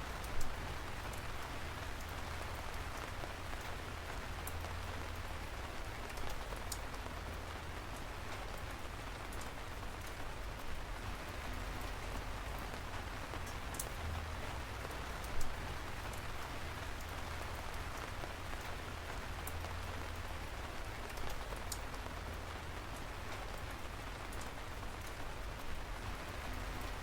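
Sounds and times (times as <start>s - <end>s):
sharp drip ticks: 19.4s - 20.3s, 21.0s - 23.4s.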